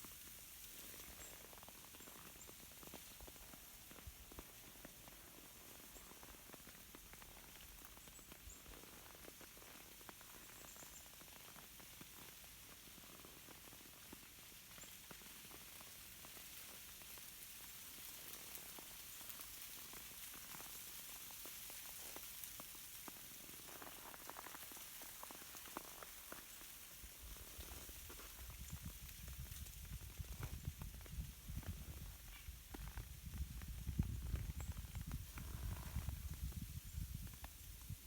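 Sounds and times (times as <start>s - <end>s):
branches swaying in breeze: 24.9s - 38.0s.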